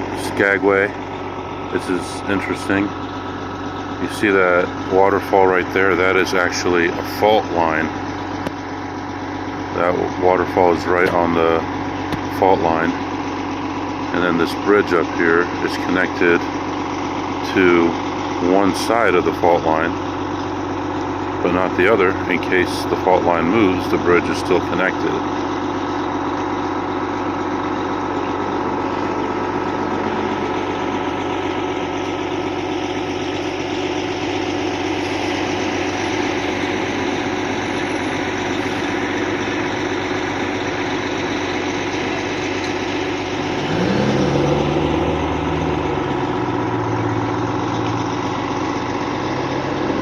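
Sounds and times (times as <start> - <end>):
engine idling: 0.0 - 50.0.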